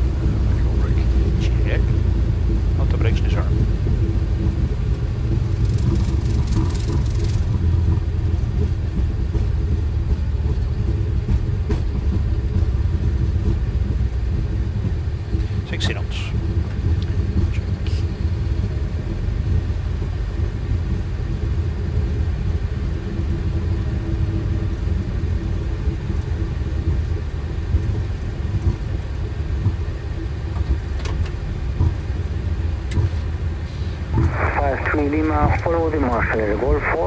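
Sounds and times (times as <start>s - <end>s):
aircraft taxiing rumble: 0.0s - 37.0s
faint steady hum: 33.7s - 37.0s.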